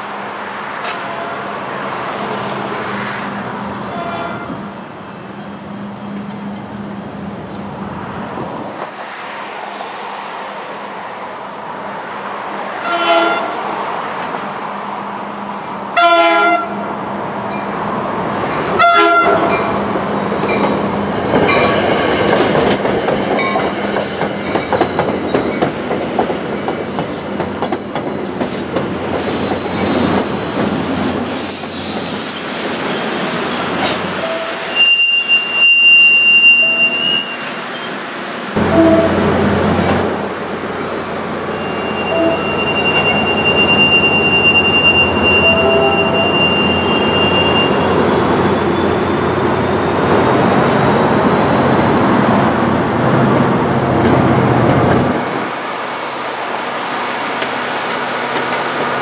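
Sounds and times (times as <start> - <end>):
train wheel and rail noise: 0.0 - 59.0
train horn blasts: 3.9 - 4.7, 12.8 - 13.6, 16.0 - 16.8, 18.8 - 19.6, 38.6 - 39.3, 41.6 - 43.6, 44.2 - 47.8
high wheel squeal: 26.3 - 38.0, 41.5 - 49.8, 51.0 - 53.1.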